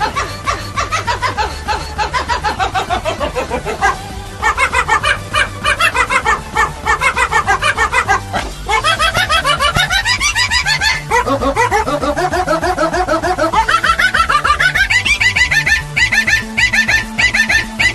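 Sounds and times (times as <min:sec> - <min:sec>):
fast pitched melody notes: 0:00.0 - 0:17.9
synth bass line: 0:00.0 - 0:17.9.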